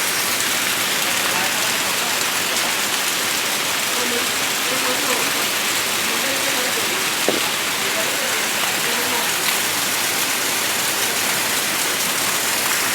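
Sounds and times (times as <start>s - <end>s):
heavy rain hissing: 0.0s - 12.9s
sharp tap: 7.3s - 7.6s.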